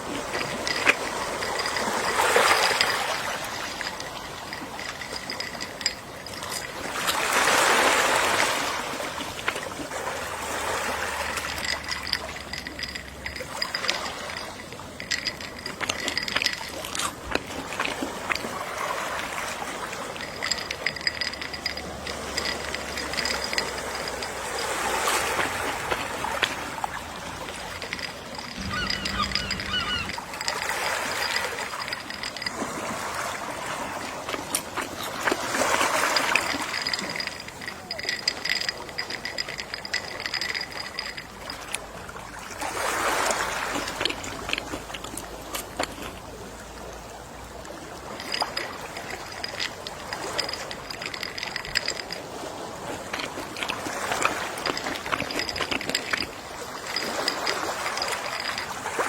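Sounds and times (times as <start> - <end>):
sea waves washing ashore: 0.0 - 59.0
seagull calls: 28.6 - 30.7.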